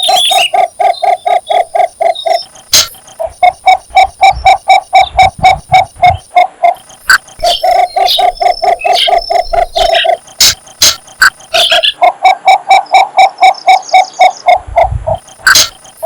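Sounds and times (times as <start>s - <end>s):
sharp clicks: 0.0s - 12.0s
bird croaking call: 0.0s - 16.0s.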